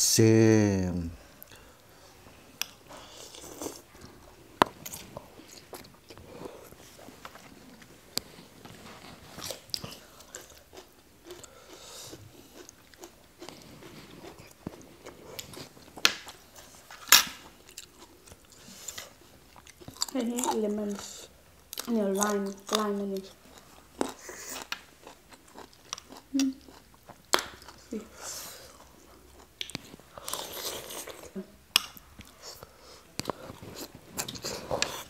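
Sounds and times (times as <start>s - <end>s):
noodles slurped and chewed: 9.1s - 15.8s, 17.7s - 31.5s, 32.2s - 35.0s.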